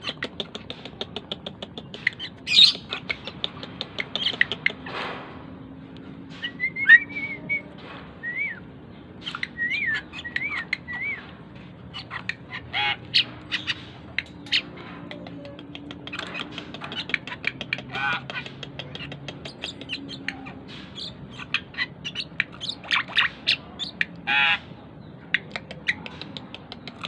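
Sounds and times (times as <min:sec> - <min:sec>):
starling clicking and chattering: 0:00.0 - 0:05.0, 0:09.2 - 0:24.3, 0:25.2 - 0:27.0.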